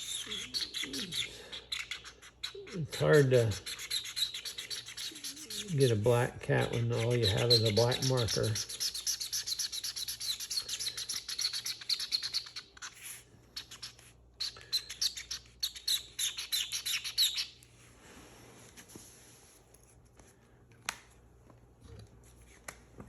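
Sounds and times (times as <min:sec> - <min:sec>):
marker scribbling on paper: 0:00.0 - 0:14.2.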